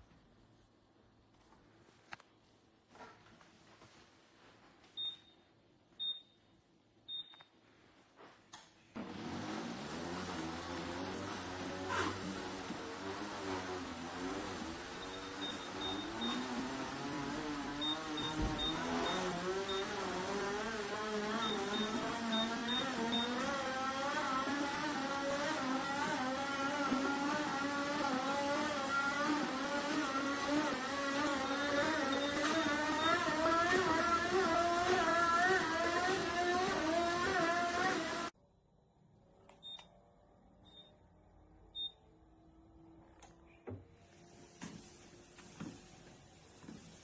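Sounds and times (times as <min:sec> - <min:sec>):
treadmill motor whine: 0:09.0 - 0:38.4, 0:39.6 - 0:47.0.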